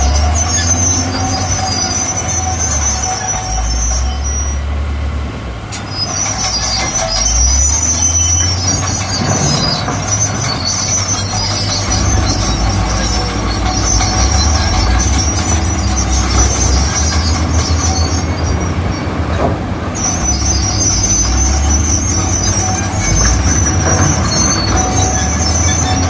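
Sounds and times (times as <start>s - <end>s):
high metallic squealing: 0.0s - 4.8s, 5.8s - 26.0s
diesel engine rumbling under load: 0.0s - 26.0s.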